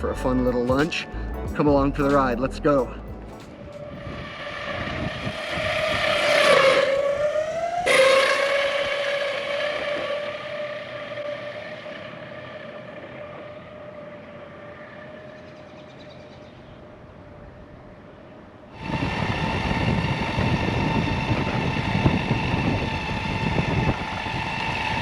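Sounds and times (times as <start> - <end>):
electric skateboard motors whining: 3.6 - 16.6, 18.8 - 25.0.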